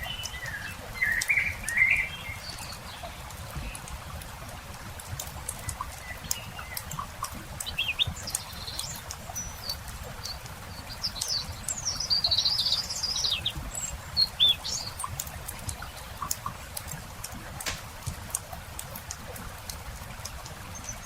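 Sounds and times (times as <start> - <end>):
small birds chirping: 0.0 - 4.2, 4.9 - 21.0
campfire crackling: 15.0 - 20.4.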